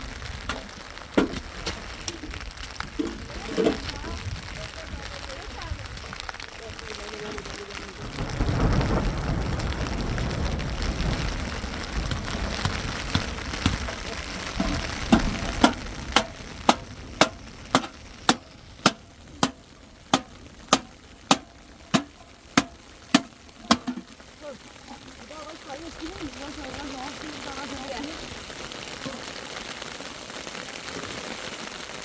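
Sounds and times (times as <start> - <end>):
steady hiss: 0.0 - 32.0.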